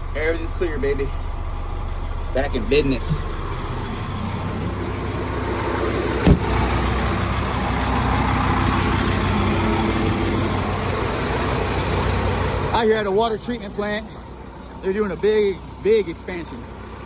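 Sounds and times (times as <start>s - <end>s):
diesel engine running: 0.0s - 17.0s
sharp knock: 6.2s - 6.5s.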